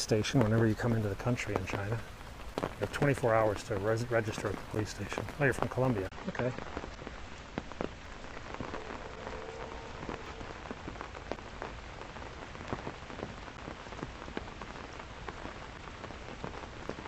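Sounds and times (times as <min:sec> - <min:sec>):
raindrop taps: 0:00.0 - 0:08.8
rain falling: 0:00.0 - 0:17.0.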